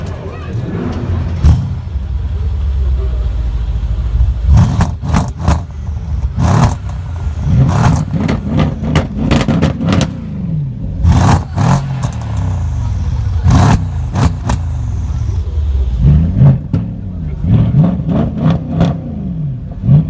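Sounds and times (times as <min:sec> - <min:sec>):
car engine revving in blips: 0:00.0 - 0:20.0.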